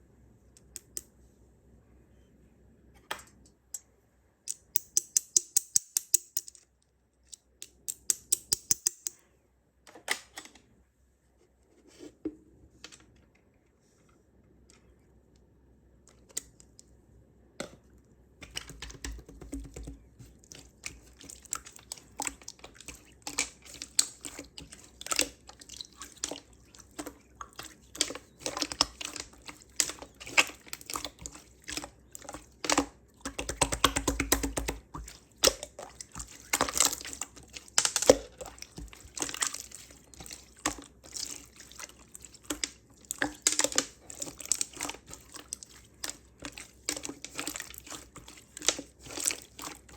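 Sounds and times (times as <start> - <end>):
slime squished by hand: 18.4 - 49.9.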